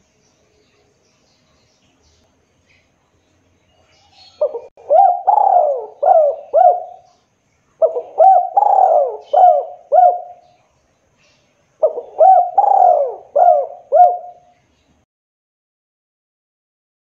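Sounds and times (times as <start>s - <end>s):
dove cooing: 4.1s - 7.2s, 7.8s - 10.6s, 11.8s - 14.5s.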